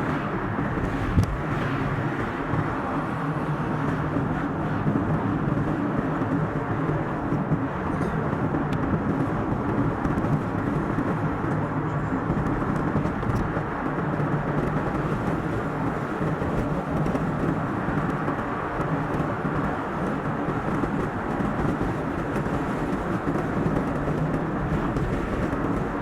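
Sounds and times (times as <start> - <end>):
car driving on highway: 0.0 - 26.0.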